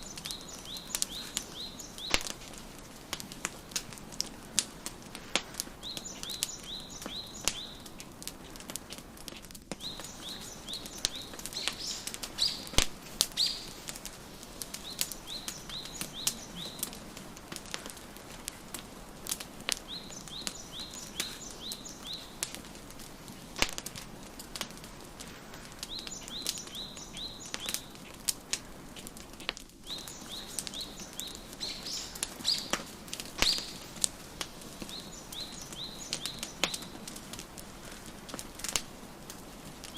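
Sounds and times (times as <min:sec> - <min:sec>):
bird chirping: 0:00.0 - 0:02.4, 0:05.8 - 0:07.9, 0:09.8 - 0:13.8, 0:14.7 - 0:17.0, 0:19.8 - 0:22.5, 0:25.8 - 0:28.1, 0:29.8 - 0:34.0, 0:34.7 - 0:37.0
wood fire crackling and popping: 0:00.0 - 0:39.9.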